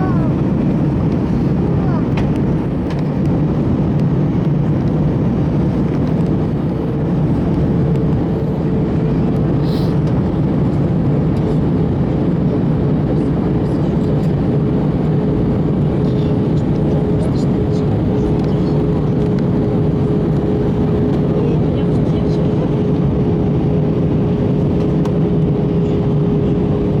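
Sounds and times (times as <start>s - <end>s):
aircraft cabin engine hum: 0.0s - 27.0s.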